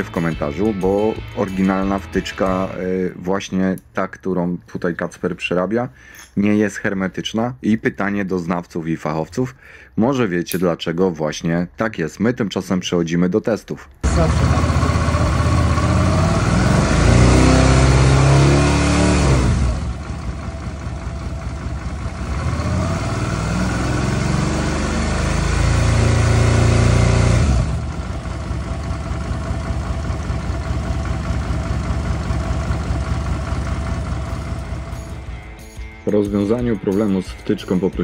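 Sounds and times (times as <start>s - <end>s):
motorcycle engine revving and idling: 14.0s - 35.4s.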